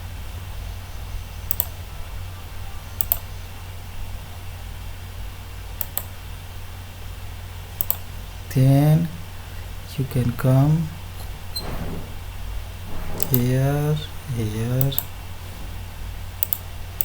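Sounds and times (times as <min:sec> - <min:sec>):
steady low hum: 0:06.5 - 0:17.0.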